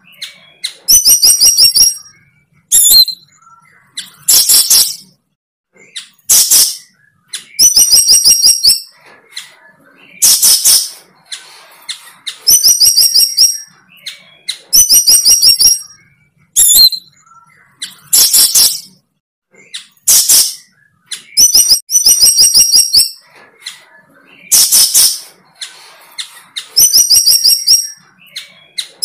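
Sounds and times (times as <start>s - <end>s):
bird singing trills: 0.0s - 29.0s.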